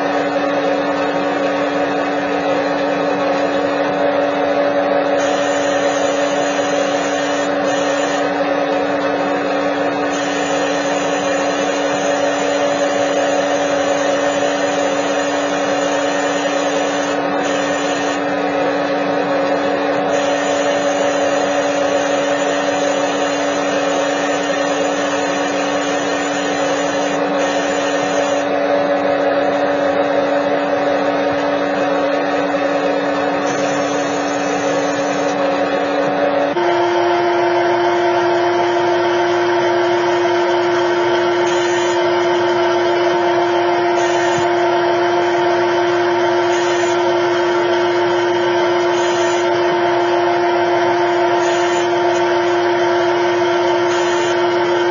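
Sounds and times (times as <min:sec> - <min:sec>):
motor humming: 0:00.0 - 0:54.9.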